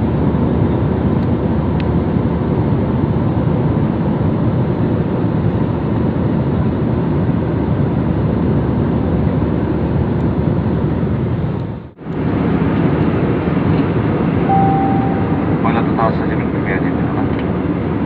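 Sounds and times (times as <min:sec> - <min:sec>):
airliner cabin noise: 0:12.0 - 0:18.0.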